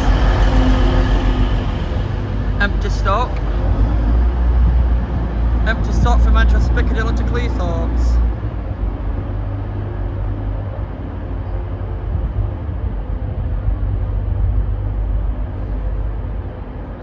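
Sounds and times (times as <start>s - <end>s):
faint engine hum: 0.0s - 17.0s
train rumbling: 0.0s - 17.0s.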